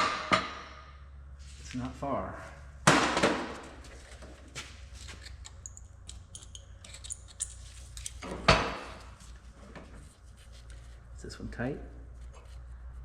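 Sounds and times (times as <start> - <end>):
steady low hum: 0.0 - 13.0
metal tools clicking: 5.1 - 8.3.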